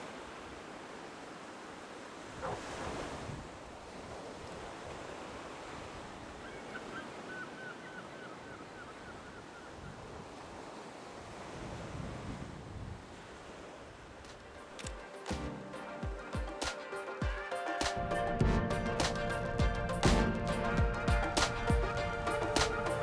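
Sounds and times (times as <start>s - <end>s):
sea waves washing ashore: 0.0s - 23.0s
wind buffeting microphone: 11.3s - 14.5s.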